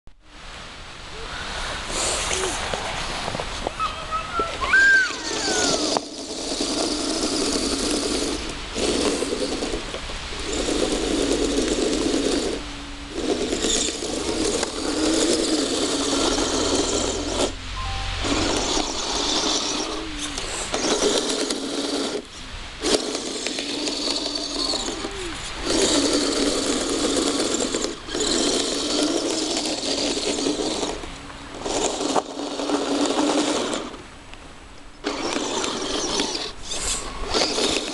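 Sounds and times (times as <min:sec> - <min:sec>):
electric motors whirring: 0:04.8 - 0:34.0, 0:35.0 - 0:37.9.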